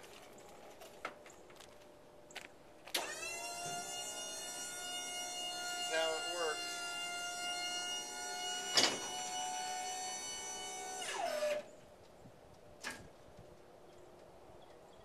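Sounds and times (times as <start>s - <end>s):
hydraulic pump motor whining: 2.9s - 11.7s.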